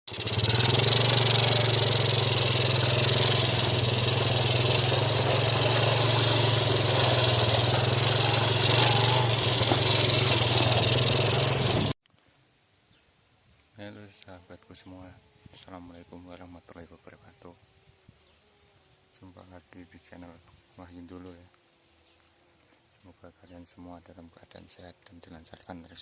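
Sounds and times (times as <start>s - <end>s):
small engine running: 0.1s - 12.0s, 14.3s - 23.2s.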